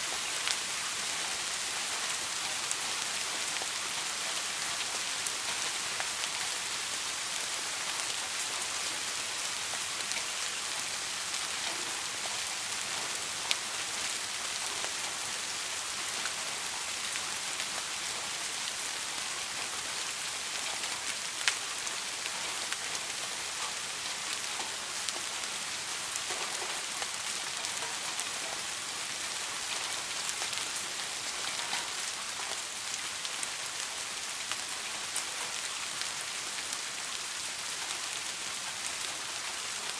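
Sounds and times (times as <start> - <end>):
soft rain hissing: 0.0 - 39.9
raindrop ticks: 11.3 - 15.2, 29.7 - 32.6.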